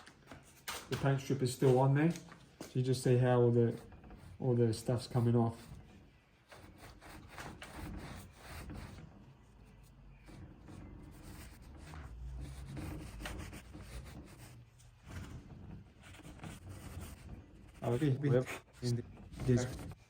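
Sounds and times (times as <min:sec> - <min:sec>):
rag rubbing on wood: 0:03.6 - 0:09.2, 0:10.2 - 0:20.0.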